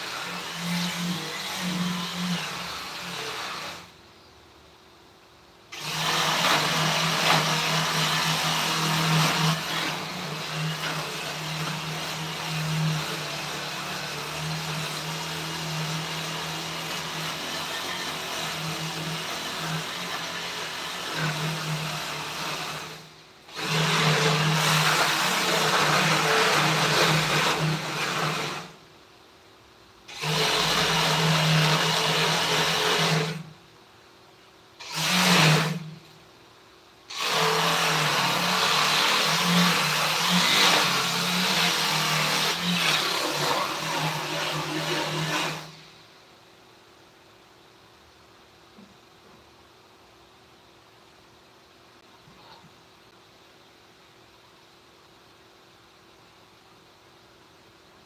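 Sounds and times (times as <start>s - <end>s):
small electric power tool running: 0.0s - 3.9s, 5.7s - 28.7s, 34.8s - 35.9s, 37.1s - 45.7s.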